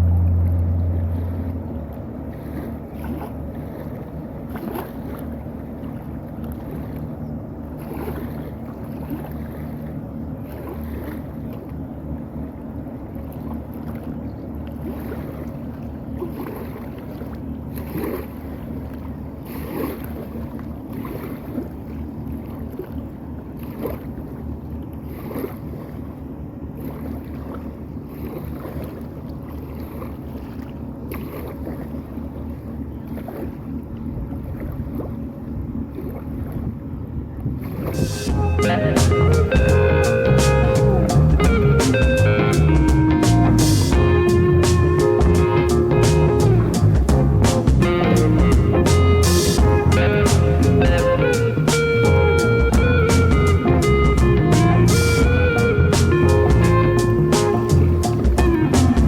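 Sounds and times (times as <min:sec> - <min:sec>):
wind on microphone: 0:00.0 - 0:04.8, 0:36.4 - 0:59.0
boat engine running: 0:00.0 - 0:59.0
water splashing against hull: 0:00.0 - 0:59.0.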